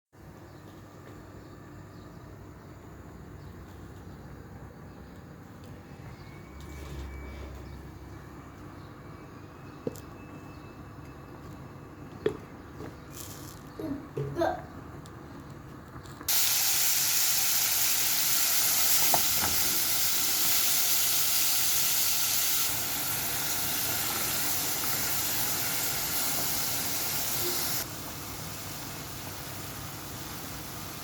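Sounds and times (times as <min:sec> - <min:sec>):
food sizzling in a pan: 0:16.3 - 0:31.0.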